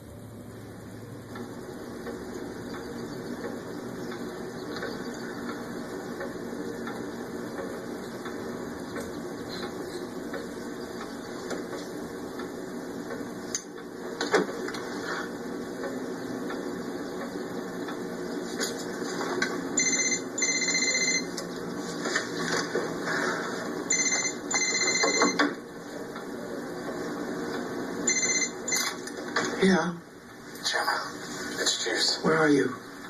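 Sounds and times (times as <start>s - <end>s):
telephone ringing: 19.8s - 21.3s, 23.9s - 25.6s, 28.0s - 29.0s.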